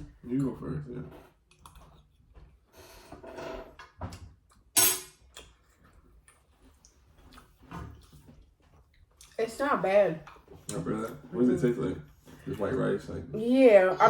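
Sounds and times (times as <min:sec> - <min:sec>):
food and containers being handled: 0:01.1 - 0:09.4.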